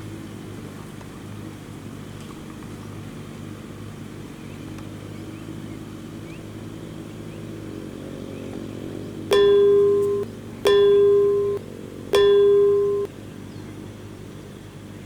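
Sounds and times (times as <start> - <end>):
tractor diesel engine running: 9.1 - 13.1
loud ringing beep: 9.3 - 11.6, 12.2 - 13.1.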